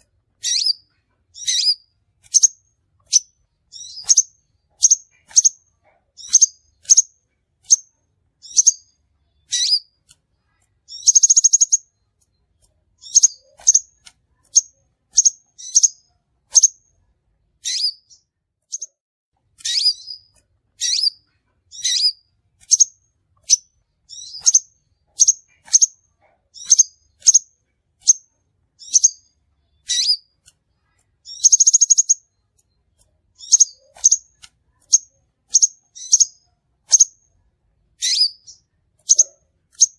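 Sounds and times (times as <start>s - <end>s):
bird chirping: 0.0s - 17.0s, 17.6s - 19.0s, 19.6s - 39.9s
bird buzzy trill: 31.3s - 32.3s.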